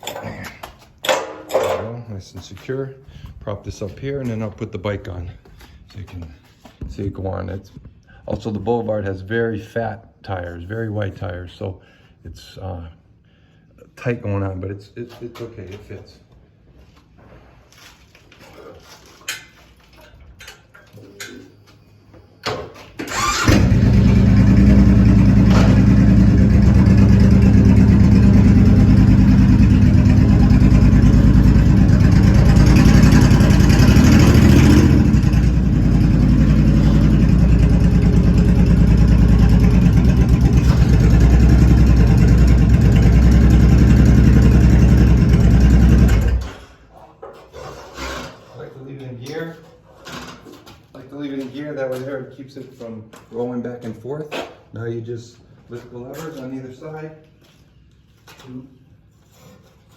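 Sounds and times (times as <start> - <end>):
motorcycle engine starting and idling: 23.0 - 46.7.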